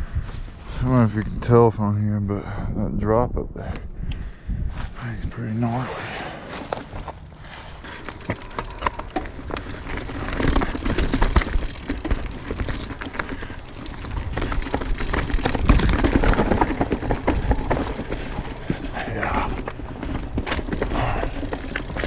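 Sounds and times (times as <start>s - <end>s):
footsteps on rocky leafy trail: 0.0s - 1.4s, 6.4s - 22.0s.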